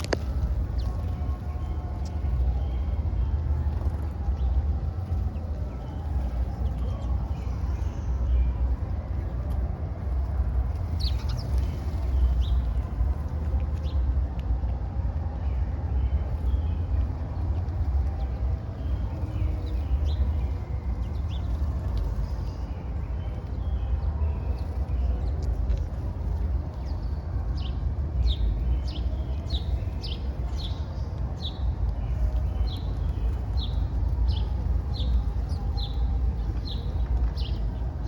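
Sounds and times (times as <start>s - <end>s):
low city rumble: 0.0s - 38.0s.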